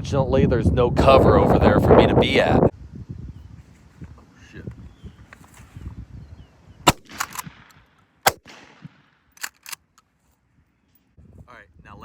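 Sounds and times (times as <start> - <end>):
shotgun shots: 6.9 - 9.6
gun handling clicks and knocks: 6.9 - 10.4.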